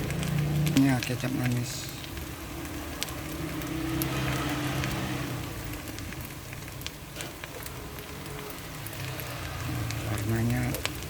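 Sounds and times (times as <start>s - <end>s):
fried rice sizzling: 0.0s - 11.0s.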